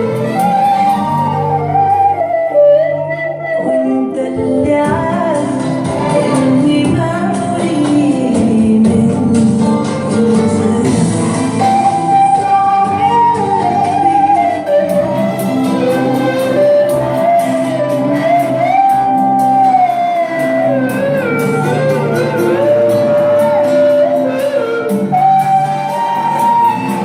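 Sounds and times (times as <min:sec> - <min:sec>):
electric violin melody: 0:00.0 - 0:07.6, 0:10.1 - 0:27.0
backing track with steady beat: 0:00.0 - 0:27.0.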